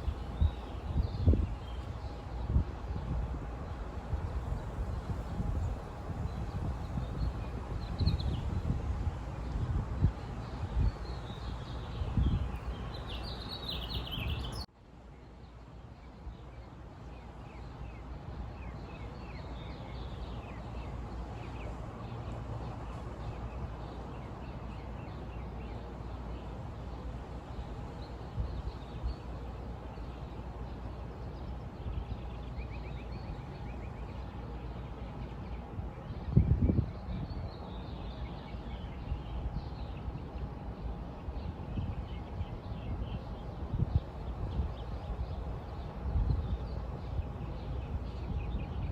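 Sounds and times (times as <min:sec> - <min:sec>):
low background noise: 0:00.0 - 0:48.9
birds chirping: 0:09.4 - 0:14.7, 0:17.0 - 0:48.9.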